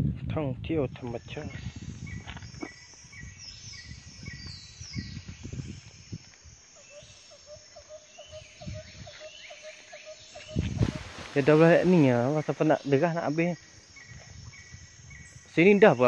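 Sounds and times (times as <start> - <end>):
quick falling bird chirps: 10.3 - 12.8.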